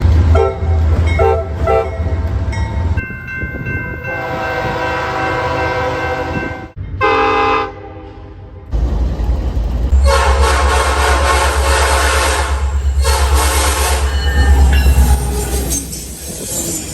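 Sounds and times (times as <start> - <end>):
locomotive horn blasts: 0.3 - 2.1, 4.1 - 8.4, 9.9 - 15.3.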